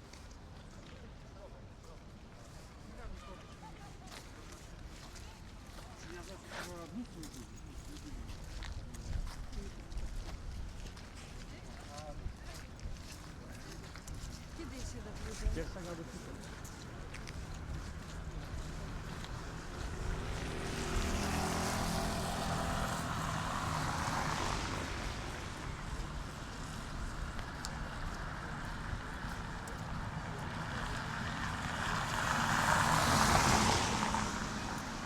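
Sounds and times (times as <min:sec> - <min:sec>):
vehicles passing: 0:15.5 - 0:35.0.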